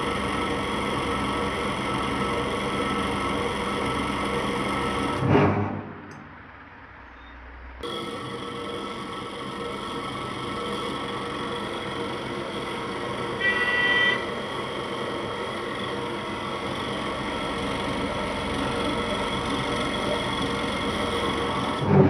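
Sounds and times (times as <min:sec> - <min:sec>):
ceiling fan motor humming: 0:07.8 - 0:22.0
short honk-like tone: 0:13.4 - 0:14.2.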